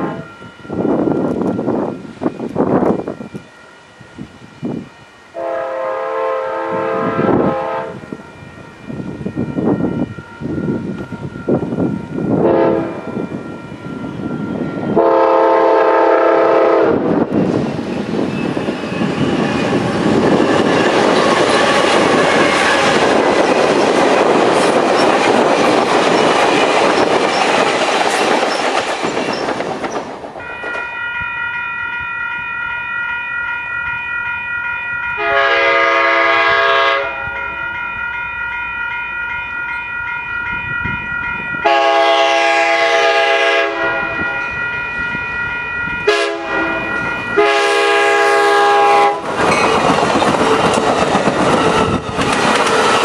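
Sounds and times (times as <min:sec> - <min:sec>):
crossing bell ringing: 0:00.0 - 0:29.4, 0:30.4 - 0:52.2
train rushing past on rails: 0:00.0 - 0:53.0
locomotive air horn chord: 0:05.3 - 0:08.2, 0:12.4 - 0:13.3, 0:14.9 - 0:17.1, 0:35.2 - 0:37.7, 0:41.6 - 0:44.4, 0:46.0 - 0:49.3.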